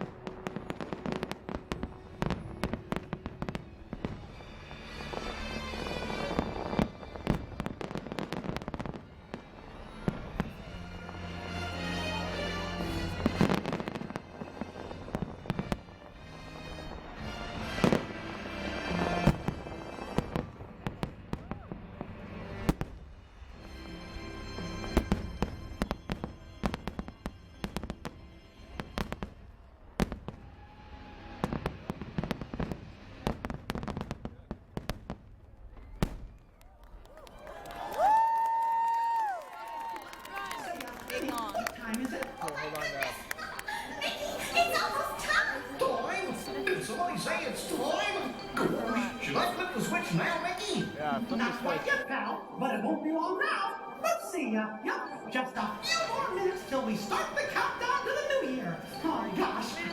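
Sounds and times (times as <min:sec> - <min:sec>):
music: 0:00.0 - 0:34.1, 0:39.4 - 0:59.9
fireworks bangs and crackles: 0:00.0 - 0:52.0, 0:55.7 - 0:59.9
faint show music: 0:39.6 - 0:59.9.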